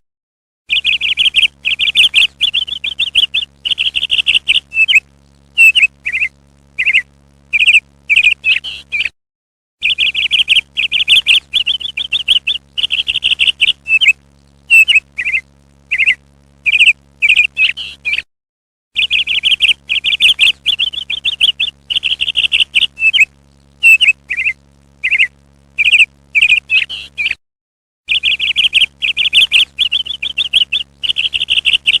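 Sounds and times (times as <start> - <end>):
low steady hum: 0.7 - 8.9, 9.8 - 18.0, 19.0 - 27.1, 28.1 - 32.0
parrot chattering calls: 5.6 - 7.0, 9.9 - 18.2, 19.0 - 27.3.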